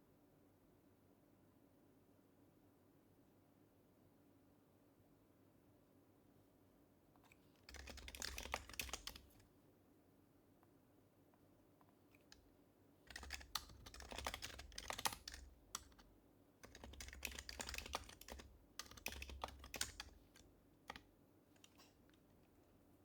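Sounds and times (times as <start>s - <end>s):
keyboard typing: 7.6s - 9.4s, 13.1s - 22.0s.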